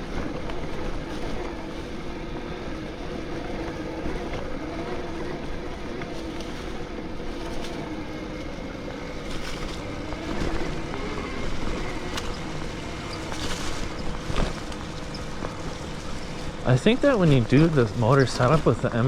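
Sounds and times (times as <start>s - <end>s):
electric bike motor whine: 0.0s - 19.0s
tyre noise: 0.0s - 19.0s
bike knocking over bumps: 9.0s - 19.0s.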